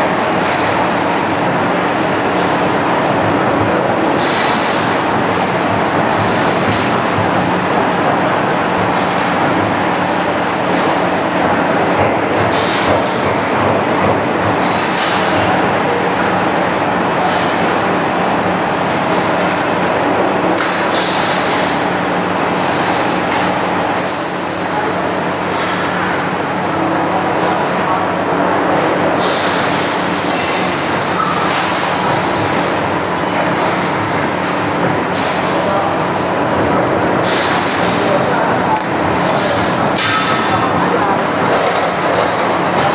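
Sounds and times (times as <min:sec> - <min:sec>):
sheet-metal punching machine running: 0:21.4 - 0:28.1.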